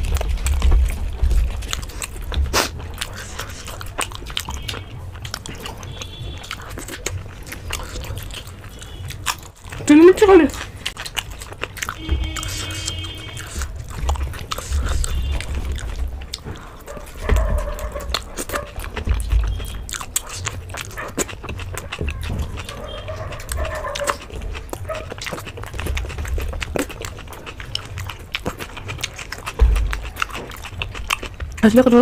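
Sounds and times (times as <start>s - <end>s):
low thumps: 0.0s - 3.0s, 13.6s - 20.0s, 29.3s - 31.6s
wet mouth clicks and smacks: 0.0s - 9.8s, 10.5s - 17.2s, 17.8s - 31.7s
people chewing food: 0.0s - 32.0s.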